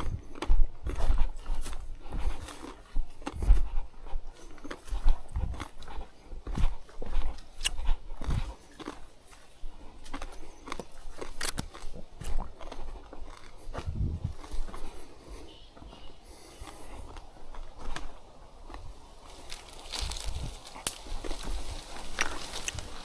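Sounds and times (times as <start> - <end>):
footsteps crunching on trail: 0.0 - 23.0
dry debris crackling: 17.5 - 23.0
gear rustling: 19.2 - 23.0.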